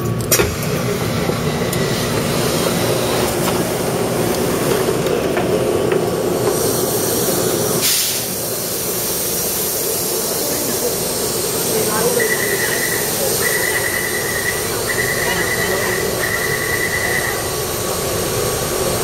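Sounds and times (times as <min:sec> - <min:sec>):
train rumbling on rails: 0:00.0 - 0:19.0
loud burst of hiss: 0:06.2 - 0:19.0.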